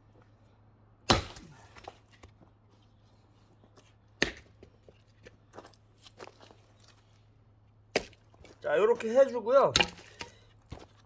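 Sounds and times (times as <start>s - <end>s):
axe striking log: 1.1s - 1.9s, 4.2s - 4.5s, 7.9s - 8.2s, 9.7s - 10.4s.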